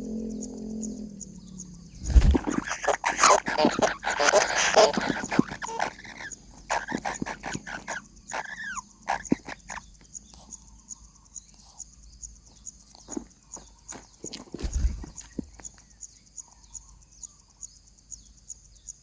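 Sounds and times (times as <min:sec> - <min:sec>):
nestling chirps: 0:00.5 - 0:11.8, 0:12.5 - 0:16.1
scratching and tapping in nest: 0:02.0 - 0:10.9, 0:12.4 - 0:16.0.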